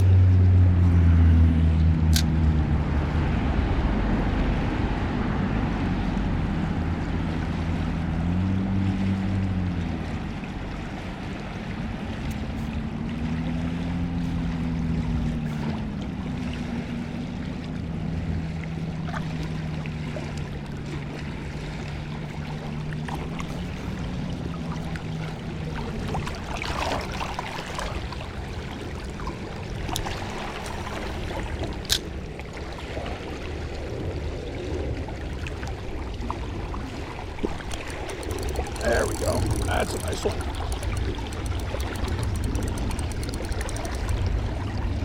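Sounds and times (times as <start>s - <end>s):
low hum: 0.0s - 19.0s, 36.6s - 45.0s.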